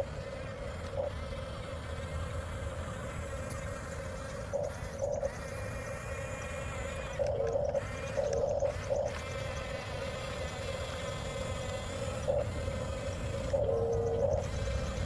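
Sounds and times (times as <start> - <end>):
toy bulldozer motors whining: 3.1 - 15.0.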